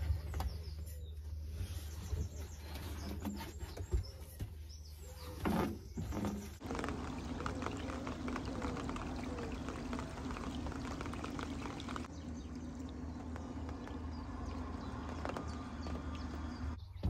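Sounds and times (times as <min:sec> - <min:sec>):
rain falling on water: 0:06.6 - 0:16.8.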